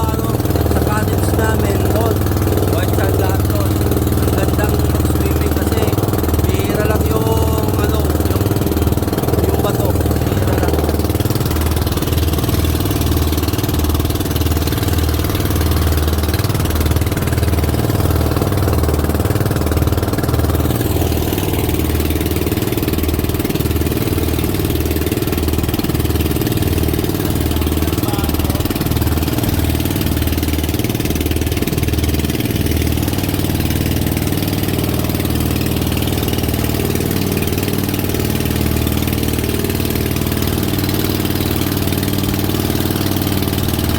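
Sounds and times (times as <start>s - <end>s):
boat engine running: 0.0s - 43.9s.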